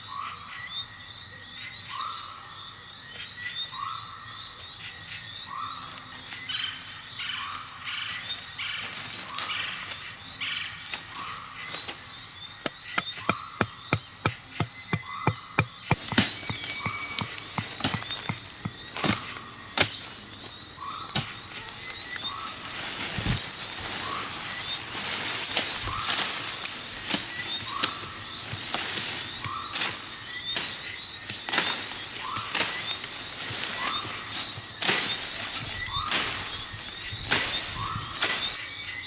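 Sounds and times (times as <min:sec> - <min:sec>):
rustling: 0:15.3 - 0:38.6.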